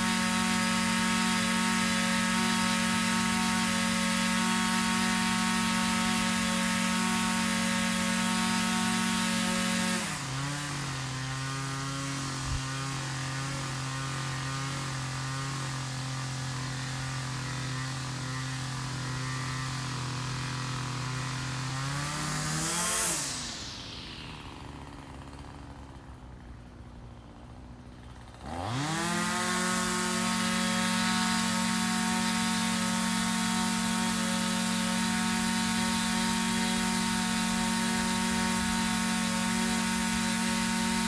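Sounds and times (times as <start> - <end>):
two-stroke engine revving: 0.0 - 26.4, 27.8 - 41.0.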